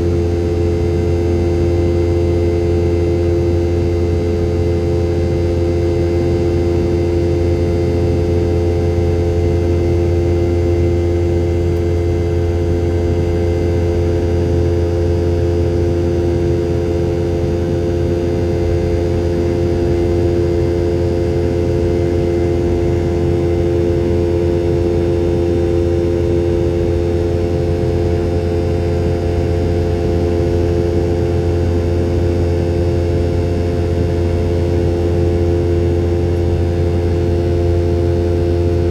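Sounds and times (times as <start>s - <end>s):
jet engine drone inside cabin: 0.0s - 38.9s.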